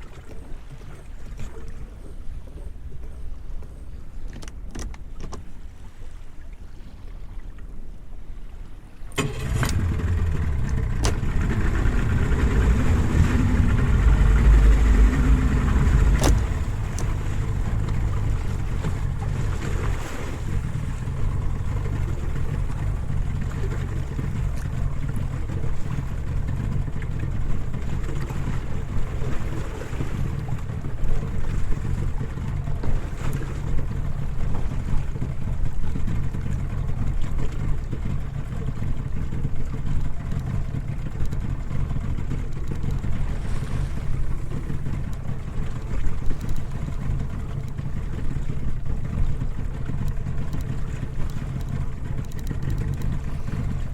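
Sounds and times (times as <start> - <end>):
outboard motor running: 0.0 - 53.9
water noise: 0.0 - 53.9
wind: 0.0 - 53.9.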